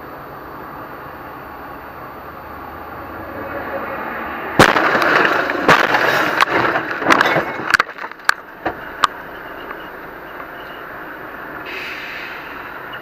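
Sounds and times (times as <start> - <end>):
road and engine noise: 0.0 - 13.0
crash bangs and scraping: 4.6 - 9.1.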